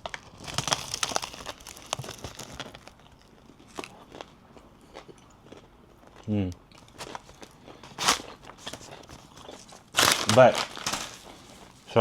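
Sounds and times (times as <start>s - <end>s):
wrapper crinkling: 0.0s - 3.9s, 7.0s - 12.0s
crunching of crusty bread: 0.0s - 12.0s.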